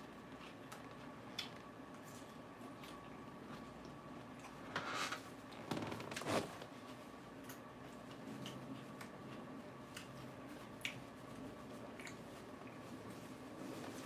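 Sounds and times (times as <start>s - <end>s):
faint chewing with clicks: 0.0s - 4.6s, 7.2s - 13.4s.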